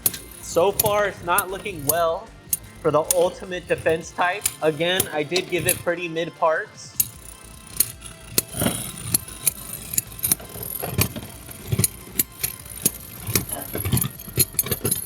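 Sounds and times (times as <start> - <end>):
high whine of spinning tops: 0.0 - 6.0, 6.8 - 15.0
spinning tops clacking: 0.0 - 6.1, 6.9 - 15.0.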